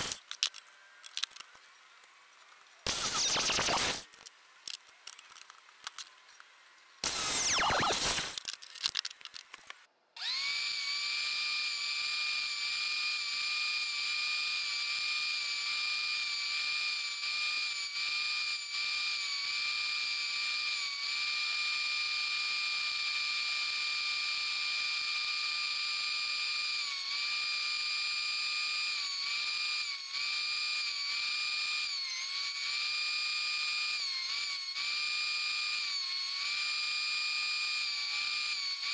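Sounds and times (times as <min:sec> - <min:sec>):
miter saw burst: 0:00.0 - 0:00.2, 0:02.8 - 0:04.1, 0:07.0 - 0:08.4
thickness planer whine: 0:00.0 - 0:04.2, 0:06.0 - 0:08.4, 0:09.7 - 0:38.9.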